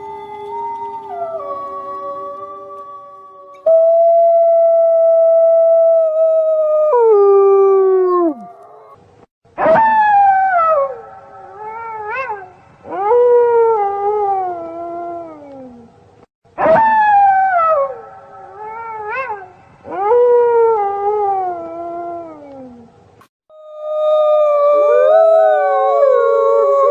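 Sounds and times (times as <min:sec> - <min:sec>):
wolf yips: 0:09.6 - 0:12.6, 0:18.6 - 0:19.6
wolves howling: 0:23.5 - 0:26.9.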